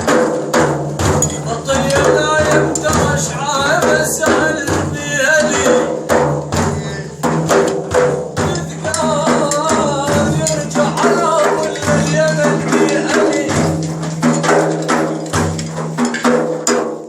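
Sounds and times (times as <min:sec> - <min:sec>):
hand percussion beating: 0:00.0 - 0:17.0
man singing: 0:01.2 - 0:07.4, 0:08.0 - 0:14.2.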